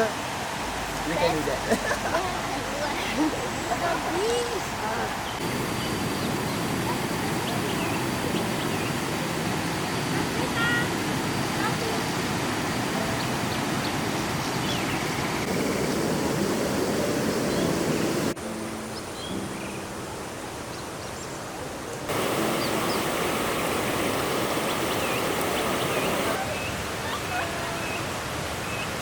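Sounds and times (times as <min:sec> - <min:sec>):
river water rushing over rocks: 0:00.0 - 0:19.0, 0:21.8 - 0:29.0.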